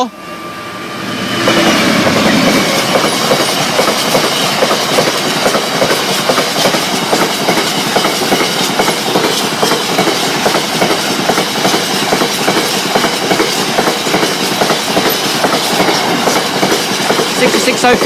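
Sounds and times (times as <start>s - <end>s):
train wheels clicking over rail joints: 1.4s - 18.0s.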